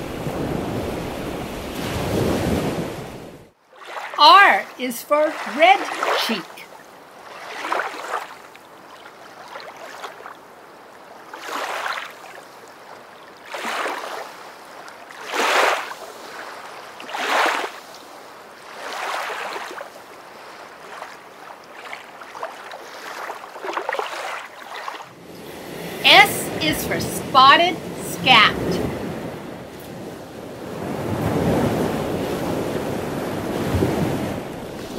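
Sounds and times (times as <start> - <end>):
water washing and splashing: 0.0 - 10.4, 13.4 - 17.8, 18.6 - 30.1.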